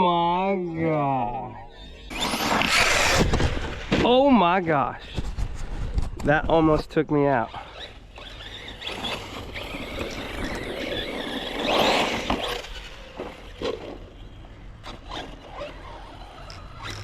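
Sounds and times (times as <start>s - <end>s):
electric motor whining: 1.8s - 3.8s, 7.6s - 17.0s
tyres on gravel: 2.1s - 17.0s.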